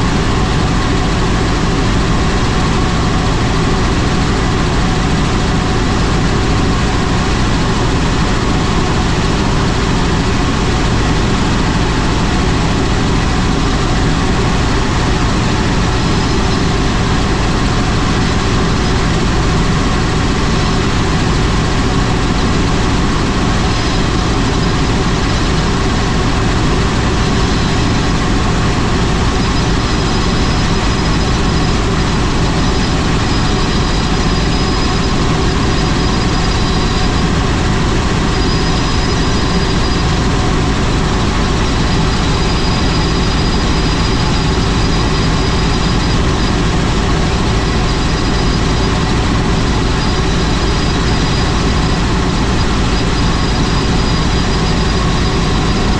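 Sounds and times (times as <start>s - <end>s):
faint high whine: 0.0s - 55.9s
helicopter engine and rotor: 0.0s - 55.9s.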